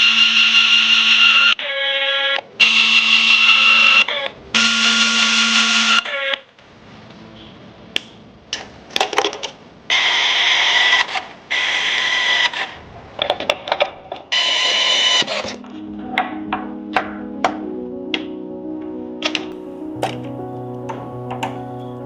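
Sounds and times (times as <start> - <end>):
background music: 15.5 - 22.0.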